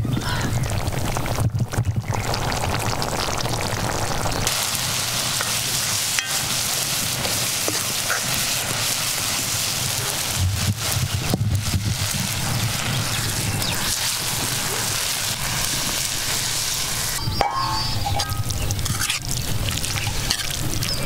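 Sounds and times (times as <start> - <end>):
food sizzling in a pan: 2.1 - 21.0
metal ladle clicking on pan: 6.2 - 6.5, 17.4 - 19.3.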